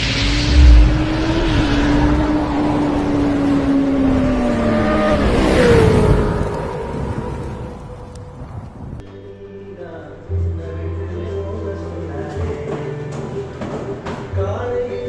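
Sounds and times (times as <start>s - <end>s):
vehicle engine running: 0.0s - 7.9s.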